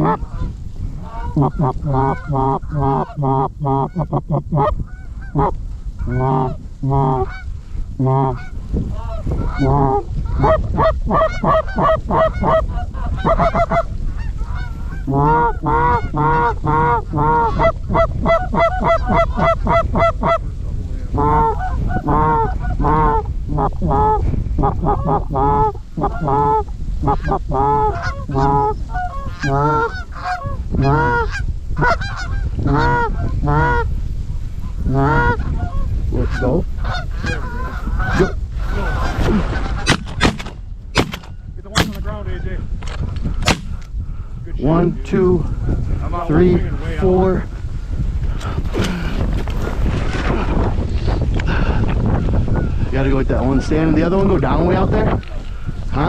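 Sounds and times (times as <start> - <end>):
geese honking: 0.0 - 7.5, 8.1 - 20.4, 21.2 - 33.9, 34.9 - 42.1
wind rumble on microphone: 0.0 - 56.0.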